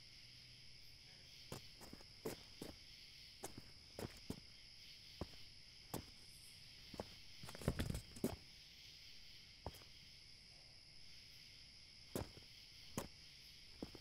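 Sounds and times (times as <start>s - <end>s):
crickets chirping: 0.0s - 14.0s
footsteps on concrete: 1.5s - 2.8s, 3.4s - 4.5s, 5.2s - 6.2s, 6.9s - 8.4s, 9.7s - 9.9s, 12.2s - 13.2s, 13.8s - 14.0s.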